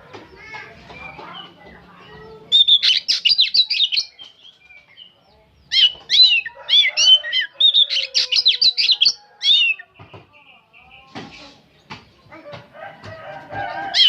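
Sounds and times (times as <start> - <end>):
bird chirping and whistling: 2.5 - 4.9, 5.7 - 9.8.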